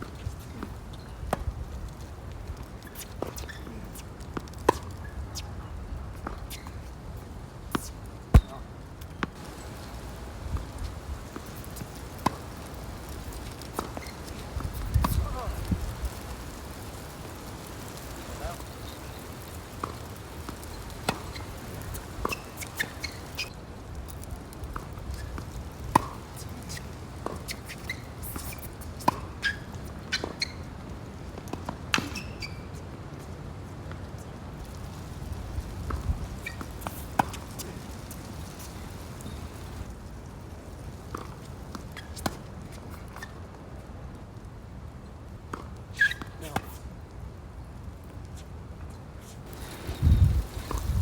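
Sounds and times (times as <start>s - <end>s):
wind buffeting microphone: 14.4s - 17.0s, 35.1s - 36.4s, 49.5s - 51.0s
short high squeaks: 21.0s - 23.5s, 32.0s - 32.8s, 45.9s - 46.8s.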